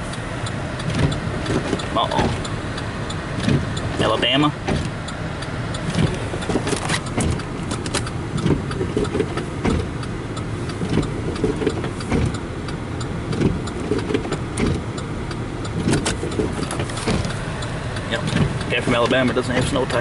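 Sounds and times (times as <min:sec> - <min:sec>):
car engine and road rumble: 0:00.0 - 0:20.0
knocks and thuds: 0:04.6 - 0:04.9.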